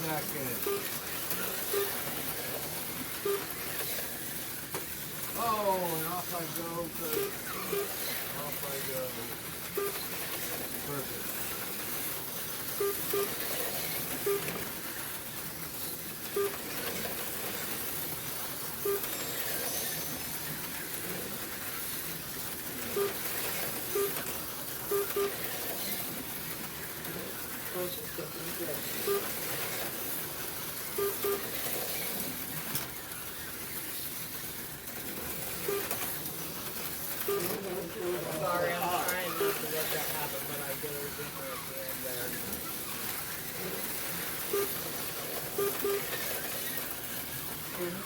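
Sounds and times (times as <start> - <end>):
slot car motors buzzing: 0.0 - 48.0
short beeps: 1.7 - 2.0, 12.8 - 13.3, 18.9 - 19.2, 29.0 - 29.3, 31.0 - 31.4.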